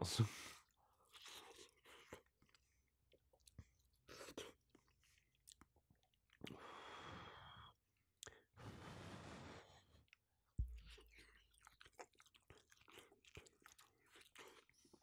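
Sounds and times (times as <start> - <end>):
faint chewing: 0.6 - 6.7, 8.2 - 8.5, 10.0 - 15.0.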